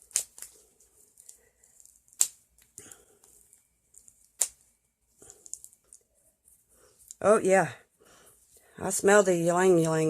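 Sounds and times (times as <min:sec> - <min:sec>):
wrapper clicks: 0:00.0 - 0:04.6
packaging crinkling and rustling: 0:00.0 - 0:06.1.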